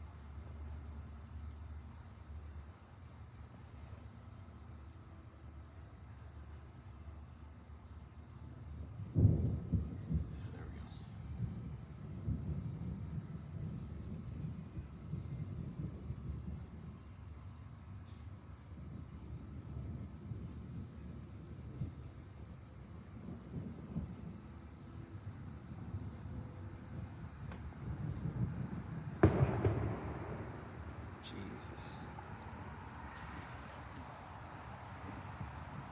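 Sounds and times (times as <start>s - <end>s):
crickets chirping: 0.0s - 35.9s
thunder crack: 27.5s - 32.2s.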